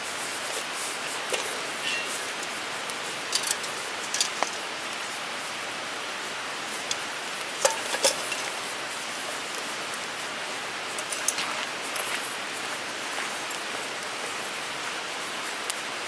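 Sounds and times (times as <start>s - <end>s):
fire crackles and pops: 0.0s - 16.0s
wood fire hissing: 0.0s - 16.0s.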